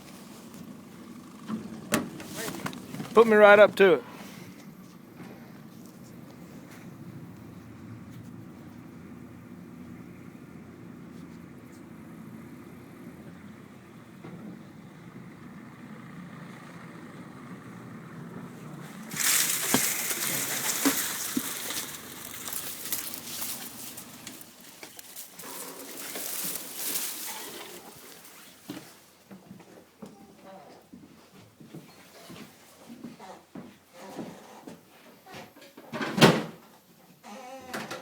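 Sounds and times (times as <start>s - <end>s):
boat motor running: 0.0s - 5.5s, 7.0s - 28.3s
loud rustling hissing noise: 18.8s - 29.3s.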